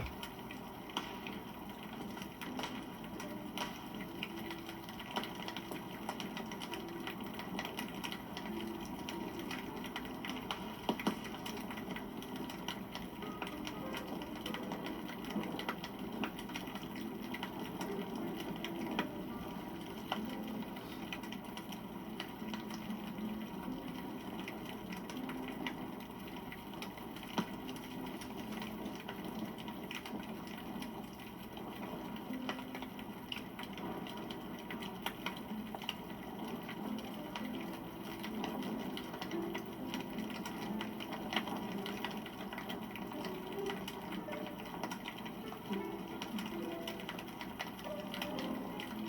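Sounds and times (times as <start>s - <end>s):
wood fire crackling: 0.0s - 49.0s
sharp fire pops: 0.9s - 1.6s.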